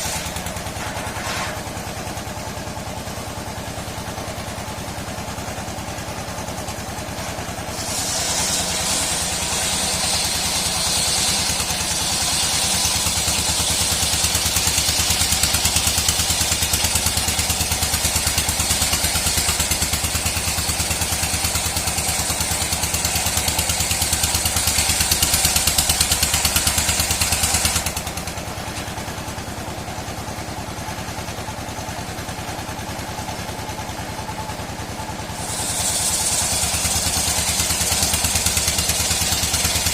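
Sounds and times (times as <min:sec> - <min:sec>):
saw cutting wood with loud hiss: 0:00.0 - 0:39.9
sawmill machine running: 0:00.0 - 0:39.9.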